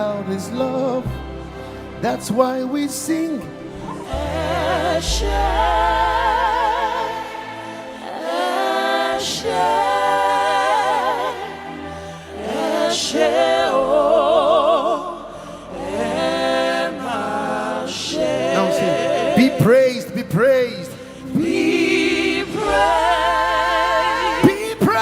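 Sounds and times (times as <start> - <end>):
gospel singing with vibrato: 0.0 - 25.0
low sustained bass note: 4.1 - 7.1.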